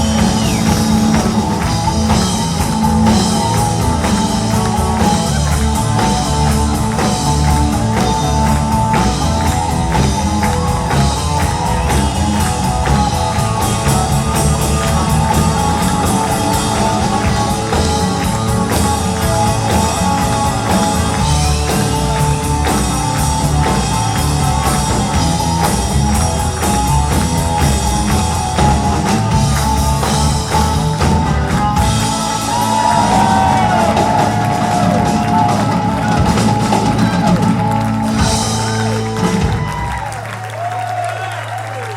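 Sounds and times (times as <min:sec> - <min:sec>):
guitar: 0:00.0 - 0:40.8
drum kit: 0:00.0 - 0:41.0
live band playing: 0:00.0 - 0:41.9.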